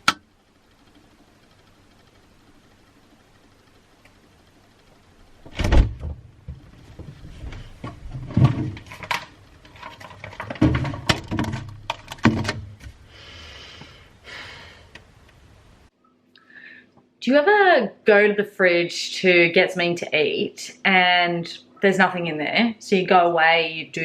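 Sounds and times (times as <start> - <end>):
knocks and thuds: 5.4 - 12.9.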